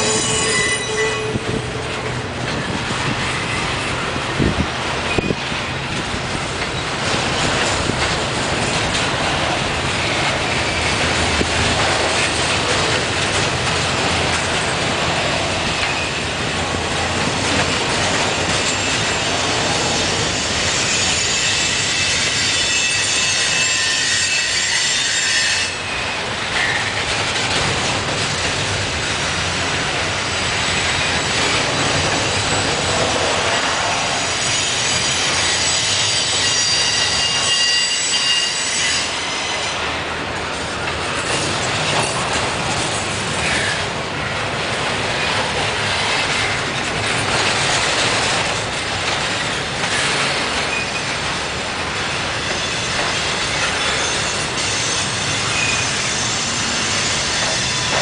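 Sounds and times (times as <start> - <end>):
train wheels squealing: 0.0 - 1.6, 5.0 - 5.8, 15.6 - 16.4, 18.0 - 27.0, 30.2 - 40.0, 49.1 - 51.4, 52.0 - 58.0
train cars rumbling on rails: 0.0 - 58.0.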